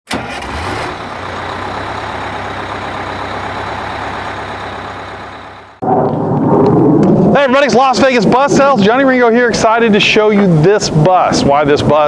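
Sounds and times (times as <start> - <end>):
bus diesel engine running: 0.1 - 5.8.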